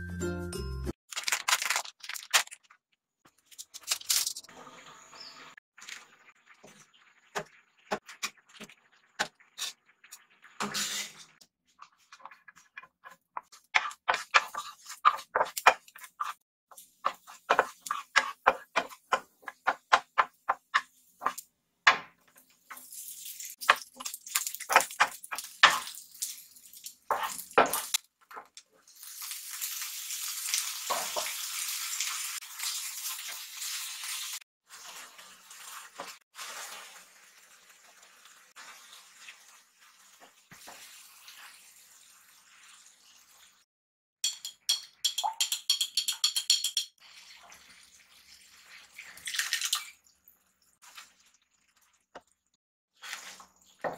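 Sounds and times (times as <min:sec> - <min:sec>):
sausage sizzling in frying pan: 0:28.8 - 0:43.5.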